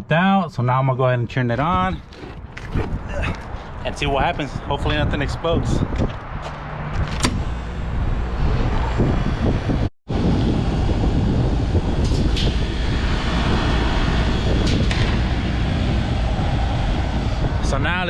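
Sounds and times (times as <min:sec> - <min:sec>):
air conditioning unit running: 0:10.1 - 0:18.0.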